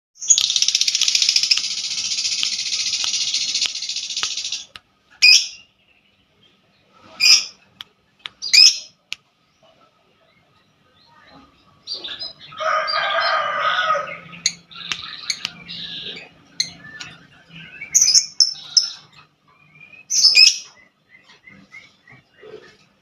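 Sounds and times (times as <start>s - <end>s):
songbird trilling: 0.2s - 5.7s
songbird calls: 13.4s - 23.0s.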